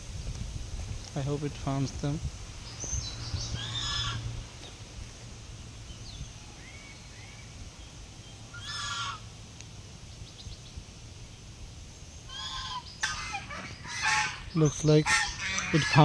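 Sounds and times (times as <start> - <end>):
goose honking: 3.6 - 4.4, 8.5 - 9.3, 12.3 - 16.0.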